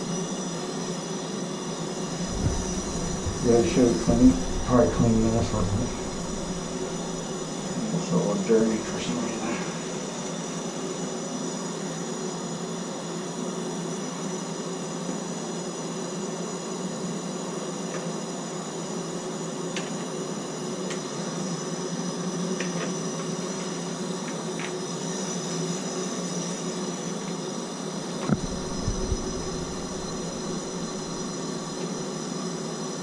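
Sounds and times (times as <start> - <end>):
torch flame hissing: 0.0 - 11.0, 28.2 - 32.2.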